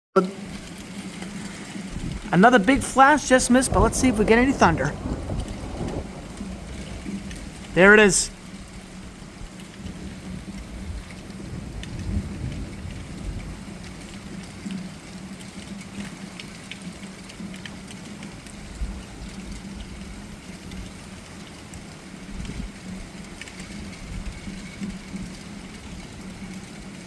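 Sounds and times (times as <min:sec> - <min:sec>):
steady rain falling: 0:00.2 - 0:27.0
thunder rumbling: 0:01.4 - 0:14.2.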